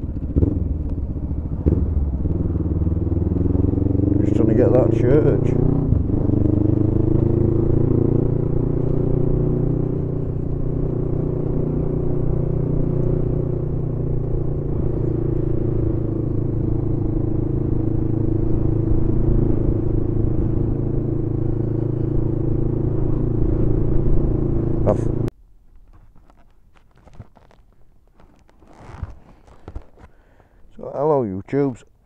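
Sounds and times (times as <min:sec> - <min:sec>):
motorcycle engine cruising: 0:00.0 - 0:31.8
low wind rumble: 0:00.0 - 0:32.0.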